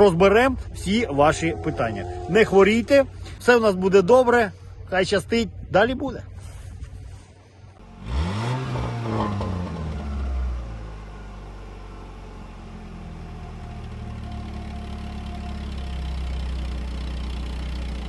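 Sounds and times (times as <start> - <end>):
vehicle engine revving and idling: 7.8 - 18.0.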